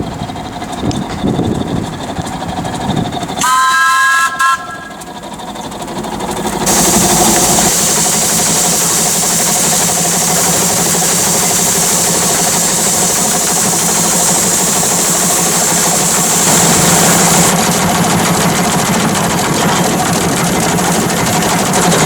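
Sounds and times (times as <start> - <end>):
steam whistle blast: 3.4 - 5.1
loud hiss of escaping steam: 6.6 - 22.0.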